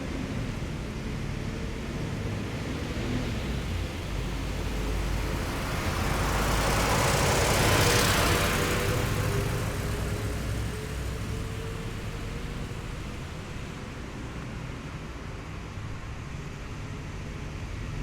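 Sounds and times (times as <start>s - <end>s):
military vehicle engine rumble: 3.2s - 14.9s.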